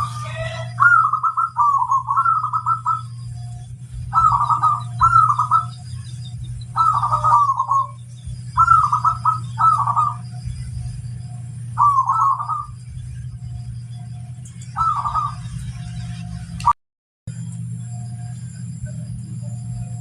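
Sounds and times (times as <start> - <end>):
dove cooing: 0.0 - 15.9
steady low hum: 0.0 - 20.0.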